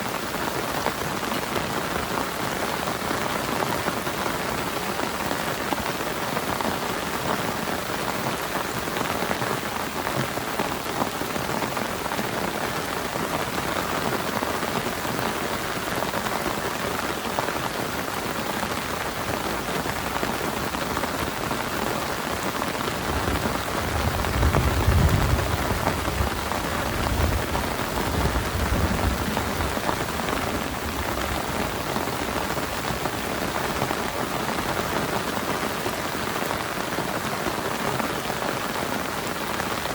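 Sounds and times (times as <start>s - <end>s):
heavy rain: 0.0s - 39.9s
thunder rumble: 23.1s - 31.8s.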